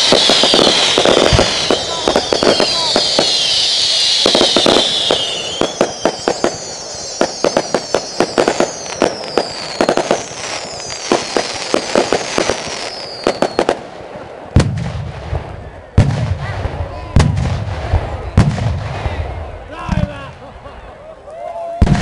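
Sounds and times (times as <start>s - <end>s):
fireworks whistles falling in pitch: 0.0s - 13.8s
fireworks bangs and crackles: 0.0s - 20.4s, 21.8s - 22.0s
deep firework boom: 14.5s - 20.1s.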